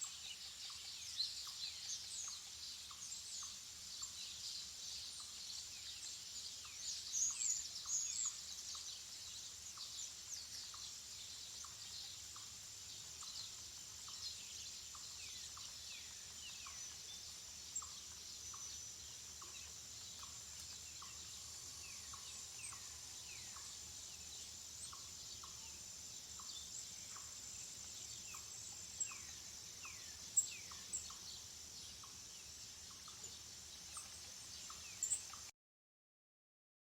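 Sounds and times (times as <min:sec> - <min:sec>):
birds chirping: 0:06.1 - 0:35.5.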